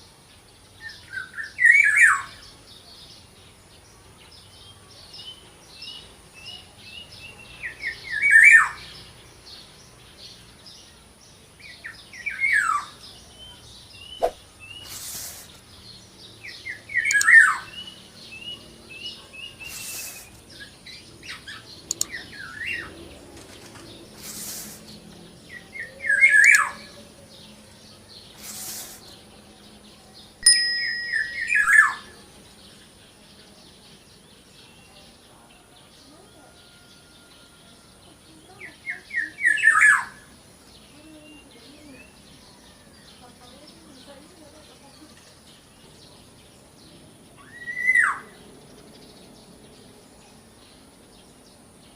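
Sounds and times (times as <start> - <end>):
short quick bird chirps: 14.1 - 15.7, 19.6 - 20.4.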